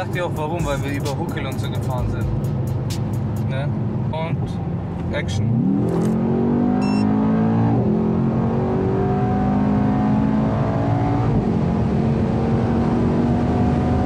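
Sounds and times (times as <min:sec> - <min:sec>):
car engine at full throttle: 0:00.0 - 0:14.0
short electronic beep: 0:06.8 - 0:07.1.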